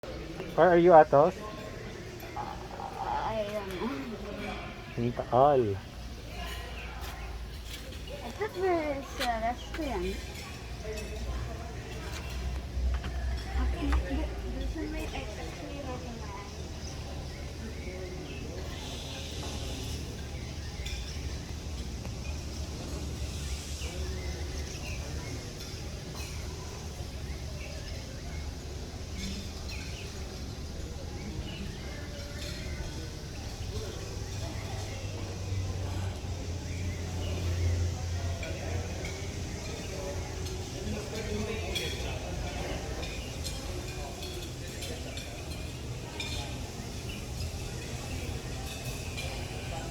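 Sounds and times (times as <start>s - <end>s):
murmured voices: 0.0s - 49.9s
light clinks: 19.3s - 49.9s.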